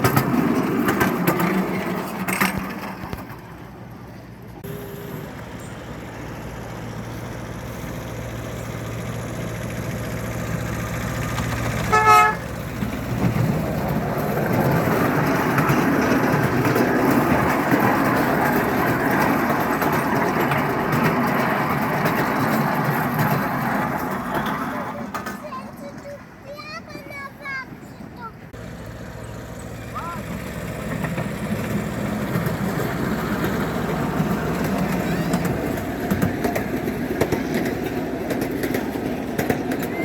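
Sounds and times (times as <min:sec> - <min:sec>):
train running noise: 0:00.0 - 0:40.0
train whistle toot: 0:11.9 - 0:12.5.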